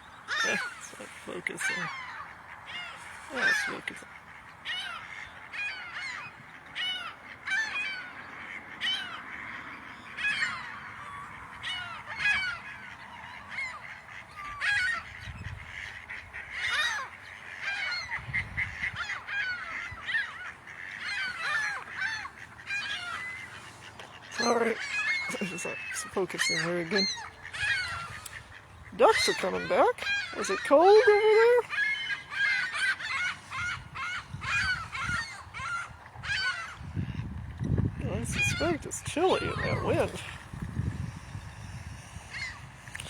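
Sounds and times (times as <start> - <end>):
waterbirds calling: 0.0 - 43.0
wind rumbling on microphone: 10.6 - 16.6, 17.9 - 20.5, 33.0 - 43.0.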